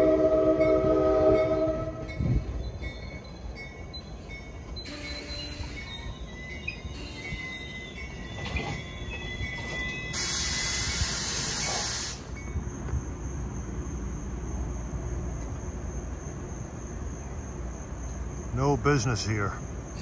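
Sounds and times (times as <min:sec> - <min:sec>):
crickets chirping: 0:00.0 - 0:20.0
train coaches rumbling past: 0:00.0 - 0:20.0
loud hiss: 0:10.1 - 0:12.4.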